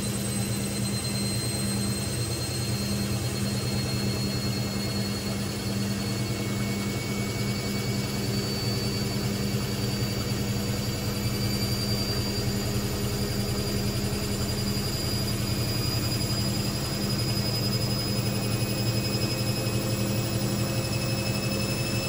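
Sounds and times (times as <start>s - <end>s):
washing machine spinning: 0.0s - 22.0s.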